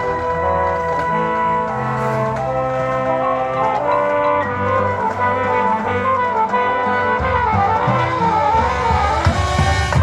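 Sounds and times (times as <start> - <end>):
brass ensemble playing chords: 0.0 - 10.0.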